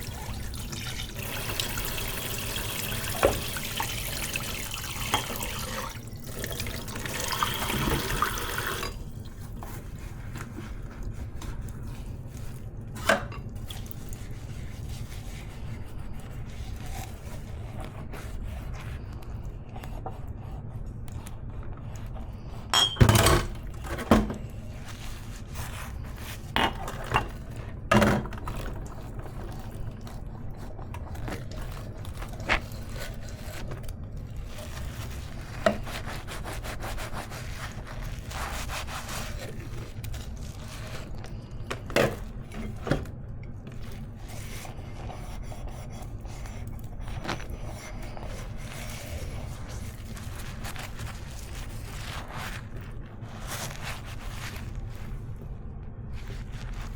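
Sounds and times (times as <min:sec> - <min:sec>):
tap running into sink: 0:00.1 - 0:09.0
dishes clinking in sink: 0:02.8 - 0:09.0, 0:13.0 - 0:13.5, 0:22.8 - 0:24.4, 0:26.6 - 0:28.4.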